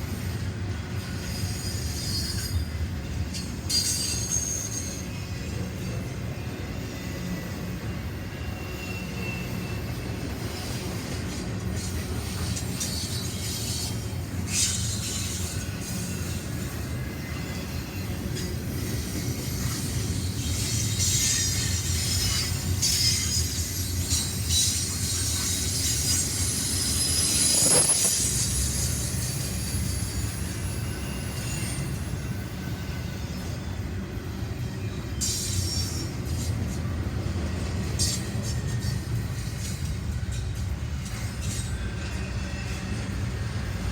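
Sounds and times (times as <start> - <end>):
train rumbling past: 0.0 - 43.9
high-pitched wheel squeal: 25.4 - 29.0.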